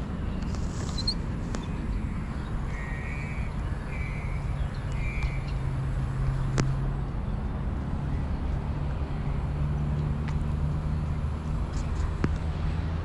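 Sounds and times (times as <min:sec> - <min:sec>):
steady low rumble: 0:00.0 - 0:13.0
bird harsh calls: 0:00.4 - 0:05.8.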